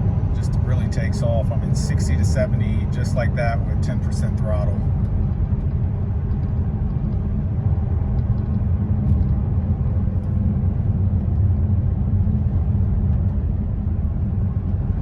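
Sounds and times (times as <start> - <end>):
car cabin engine rumble: 0.0 - 15.0
road noise: 0.0 - 15.0.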